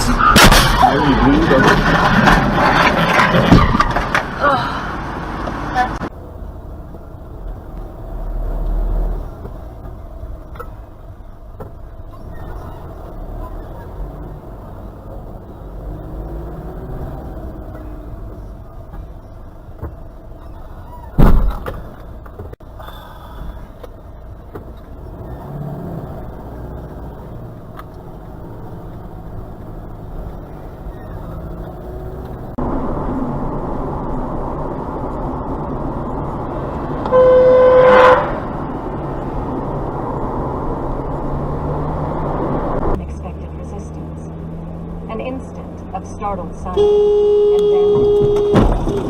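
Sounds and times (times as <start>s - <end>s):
loud crash impact: 0.0s - 4.4s
car road and engine noise: 0.0s - 49.0s
car horn blast: 37.0s - 38.6s, 46.6s - 49.0s.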